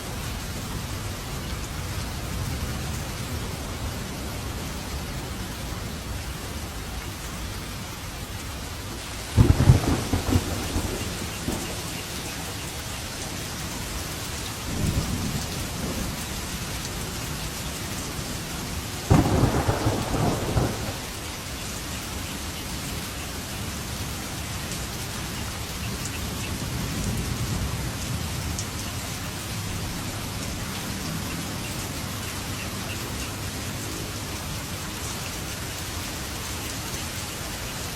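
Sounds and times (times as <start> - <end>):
steady rain: 0.0 - 37.9
thunder cracks and rumbling: 9.4 - 12.0, 19.1 - 21.2.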